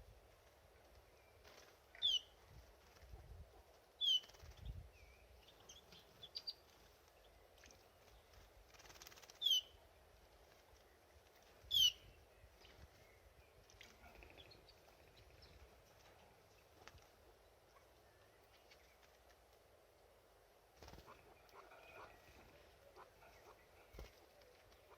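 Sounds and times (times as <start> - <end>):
canary chirps: 1.2 - 7.3, 8.7 - 9.8, 11.6 - 19.1, 20.8 - 24.9.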